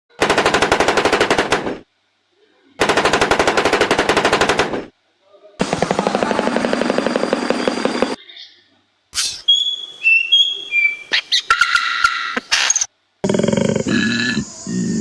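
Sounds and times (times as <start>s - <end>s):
rapid rattling bursts: 2.8s - 4.9s, 5.6s - 8.2s.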